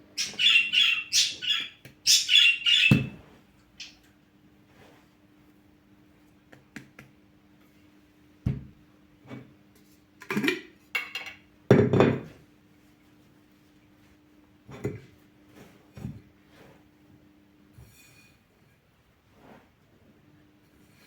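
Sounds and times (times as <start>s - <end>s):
dishes clattering and clinking: 10.2s - 12.3s.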